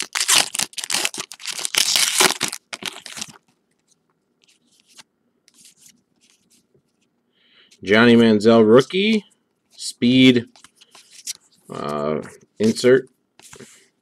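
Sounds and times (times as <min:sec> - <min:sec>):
foil wrapper crinkling and tearing: 0:00.0 - 0:03.4.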